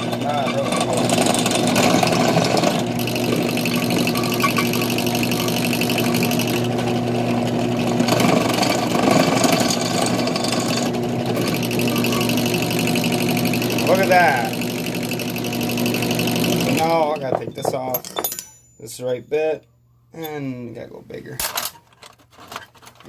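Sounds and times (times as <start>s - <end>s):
electric drill drilling into metal: 0.8s - 6.8s, 7.9s - 17.0s.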